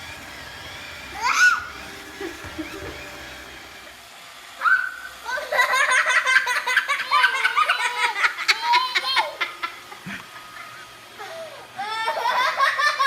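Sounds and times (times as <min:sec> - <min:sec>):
people laughing: 0:01.7 - 0:03.5.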